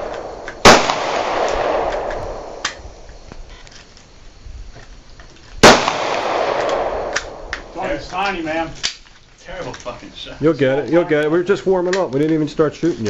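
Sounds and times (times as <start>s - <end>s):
pistol shots echoing: 0.0s - 2.8s, 5.6s - 7.8s.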